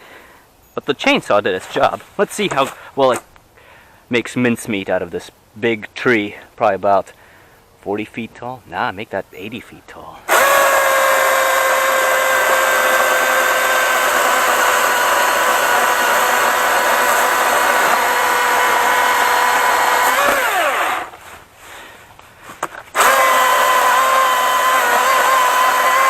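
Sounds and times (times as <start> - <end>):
electric chainsaw whining: 10.3 - 21.2, 22.9 - 26.0.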